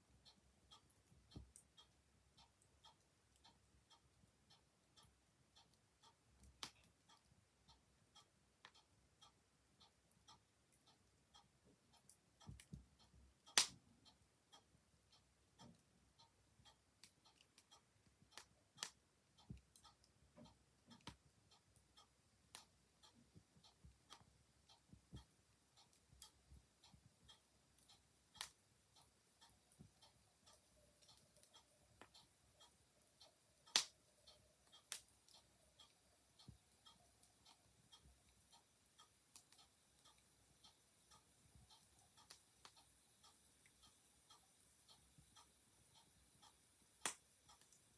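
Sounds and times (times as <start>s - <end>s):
mechanical clock ticking: 0.0s - 47.9s
wood fire crackling and popping: 13.6s - 13.8s, 33.7s - 33.9s, 47.0s - 47.8s.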